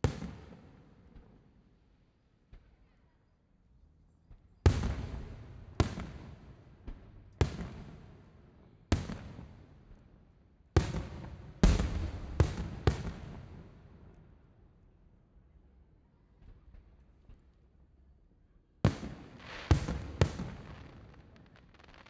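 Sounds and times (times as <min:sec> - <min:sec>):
fireworks booming with echoes: 0:04.7 - 0:08.2, 0:08.9 - 0:09.6, 0:10.8 - 0:14.1, 0:18.9 - 0:22.0.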